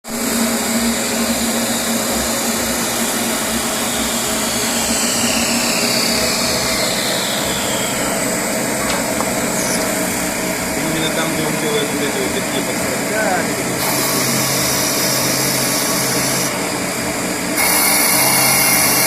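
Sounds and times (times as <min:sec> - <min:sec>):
machine whirring and humming: 0:00.1 - 0:19.0
high whine sliding down: 0:03.7 - 0:12.1.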